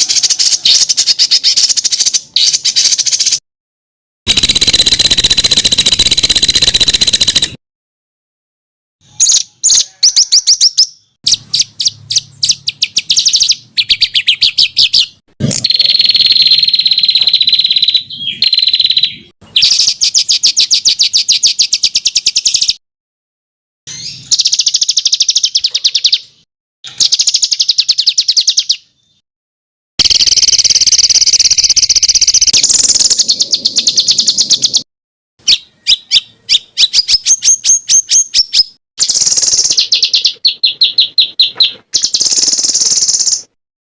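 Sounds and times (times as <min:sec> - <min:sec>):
songbird singing rapid trills: 0:09.1 - 0:22.8, 0:23.9 - 0:26.3, 0:26.9 - 0:29.2, 0:30.0 - 0:34.8, 0:35.4 - 0:43.5.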